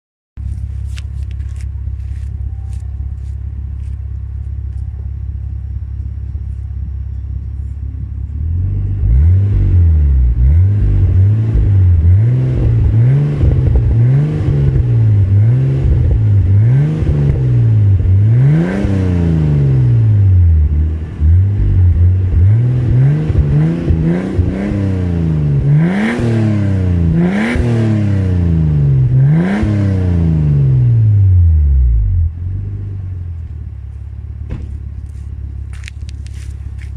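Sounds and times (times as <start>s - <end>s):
car engine idling: 0.4s - 18.4s, 30.9s - 36.9s
car engine revving: 8.0s - 36.9s.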